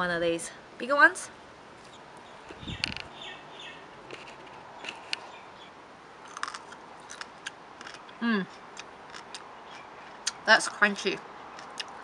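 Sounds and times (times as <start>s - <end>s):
crisp crunching of fruit: 6.2s - 10.4s, 11.5s - 12.0s
person humming: 8.2s - 8.5s.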